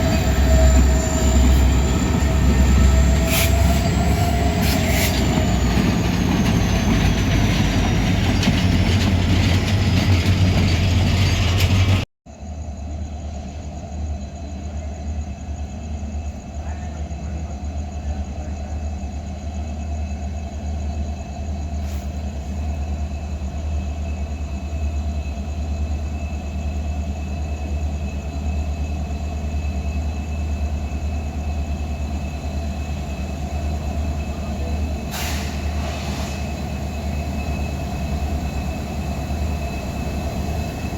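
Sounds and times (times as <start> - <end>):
high-pitched wheel squeal: 0.0 - 9.0
train rolling rumble: 0.0 - 40.9
thin steady whines: 12.4 - 40.9.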